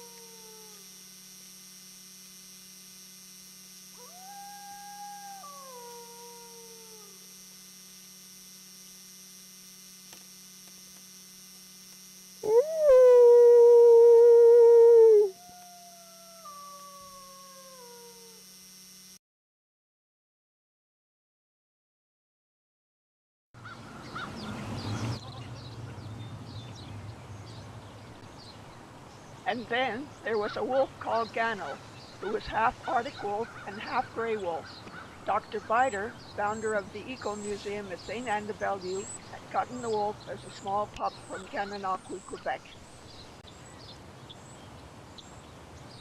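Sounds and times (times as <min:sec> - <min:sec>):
wolf howling: 0:00.0 - 0:00.8, 0:04.0 - 0:07.2, 0:12.4 - 0:18.4
short high animal calls: 0:00.0 - 0:00.9, 0:04.0 - 0:07.2, 0:15.1 - 0:18.4
faint electrical hum: 0:00.0 - 0:19.2, 0:23.6 - 0:46.0.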